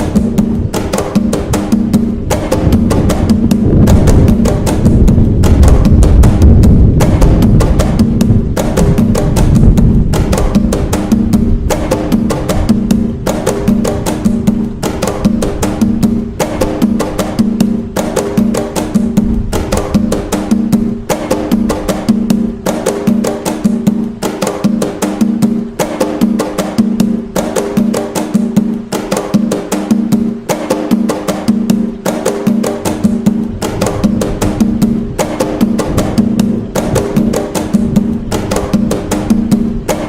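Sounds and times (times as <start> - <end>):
hand drums playing fast rhythm: 0.0 - 40.0.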